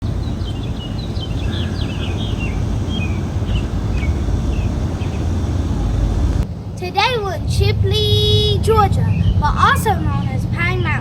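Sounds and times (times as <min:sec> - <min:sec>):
small songbirds chirping: 0:00.0 - 0:06.4
steady low rumble: 0:00.0 - 0:06.8.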